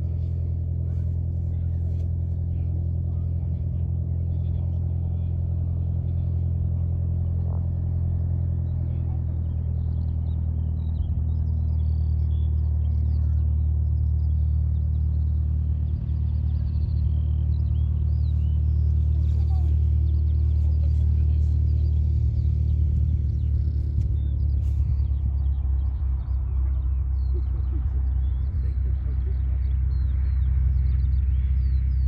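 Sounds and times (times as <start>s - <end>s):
low engine drone: 0.0s - 32.0s.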